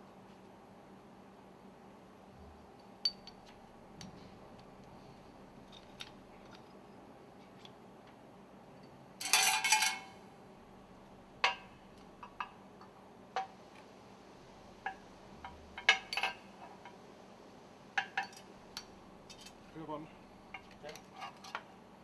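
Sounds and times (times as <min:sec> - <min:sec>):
metal rings clinking: 0:09.2 - 0:10.1.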